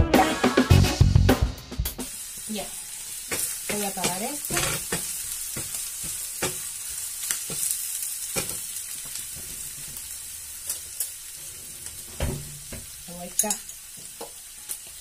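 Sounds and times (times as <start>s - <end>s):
food sizzling in frying pan: 2.0s - 15.0s.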